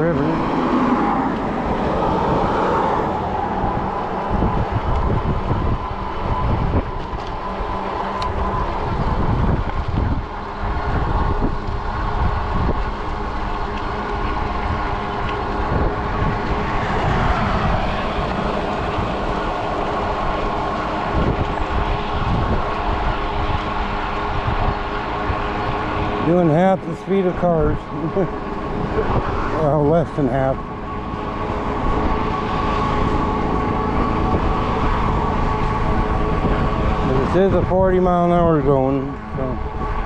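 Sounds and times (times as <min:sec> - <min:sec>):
electric motor whine: 0:00.0 - 0:40.0
wind buffeting microphone: 0:00.0 - 0:40.0.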